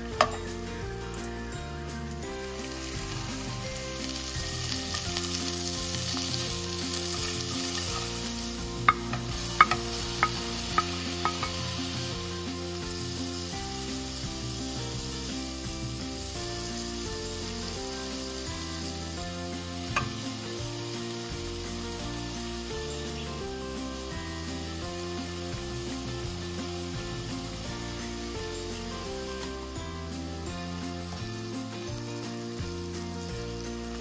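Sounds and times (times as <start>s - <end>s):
onions and chicken sizzling in oil: 0.0s - 34.0s
meat clinking against pan: 4.2s - 12.2s, 19.6s - 20.5s.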